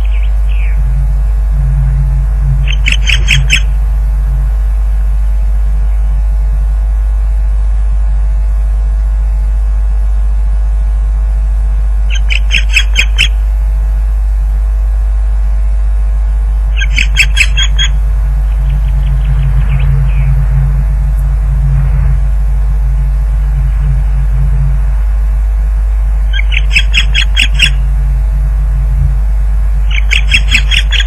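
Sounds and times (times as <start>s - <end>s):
osprey alarm calls: 0.0s - 1.2s, 2.5s - 3.9s, 12.1s - 13.5s, 16.7s - 20.4s, 26.2s - 27.9s, 29.8s - 31.0s
electrical hum: 0.0s - 31.0s.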